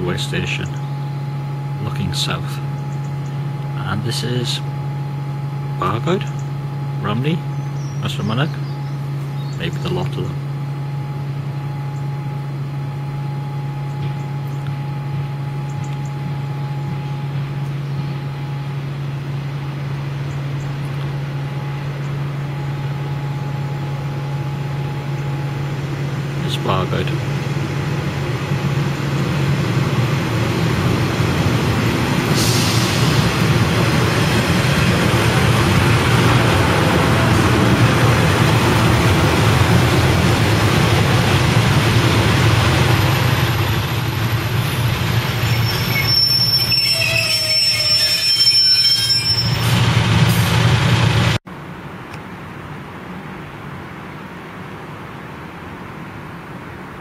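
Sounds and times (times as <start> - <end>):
train wheel and rail noise: 0.0 - 53.4
train engine drone: 0.0 - 57.0
metallic brake squealing: 45.2 - 50.2.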